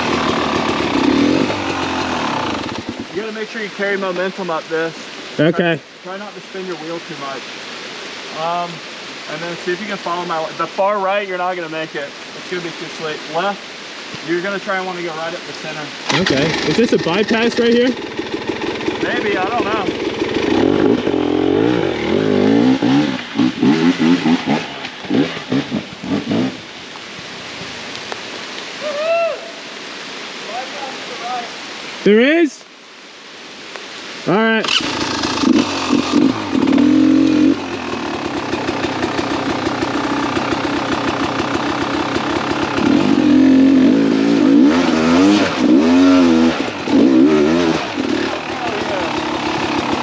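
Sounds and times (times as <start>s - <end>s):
two-stroke motorcycle engine revving: 0.0s - 3.3s, 16.1s - 26.7s, 34.6s - 50.0s.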